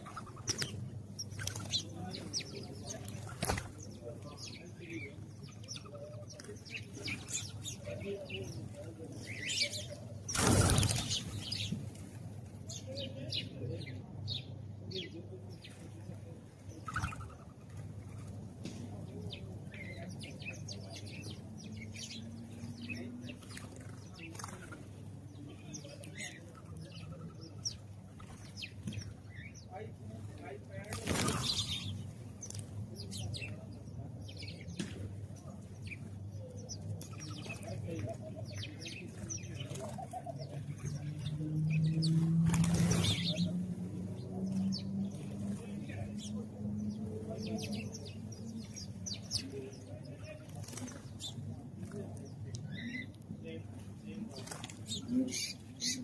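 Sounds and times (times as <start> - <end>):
sparrows chirping: 0.0 - 56.0.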